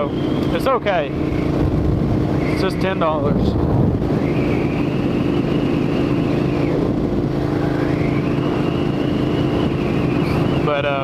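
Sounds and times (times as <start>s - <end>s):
motorcycle engine running: 0.0s - 11.0s
wind noise: 0.0s - 11.0s.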